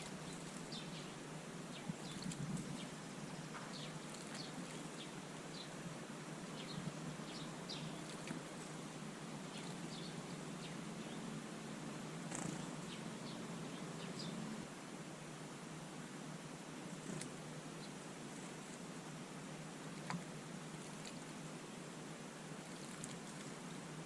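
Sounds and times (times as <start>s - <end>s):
small birds chirping: 0.0s - 14.6s, 16.9s - 19.1s, 22.6s - 24.0s.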